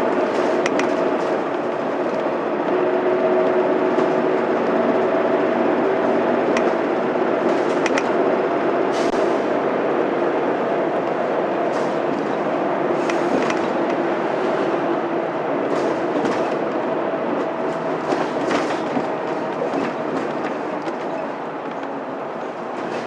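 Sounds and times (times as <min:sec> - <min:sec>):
bus diesel engine running: 0:00.0 - 0:23.0
road noise: 0:00.0 - 0:23.0
interior rattles and clicks: 0:00.1 - 0:02.8, 0:03.4 - 0:08.4, 0:10.9 - 0:14.1, 0:15.6 - 0:22.0.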